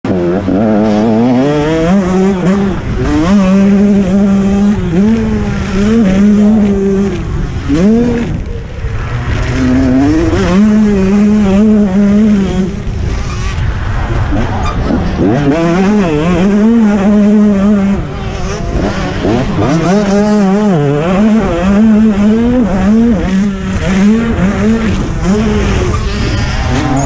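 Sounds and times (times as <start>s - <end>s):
motocross bike engine revving: 0.1s - 27.0s.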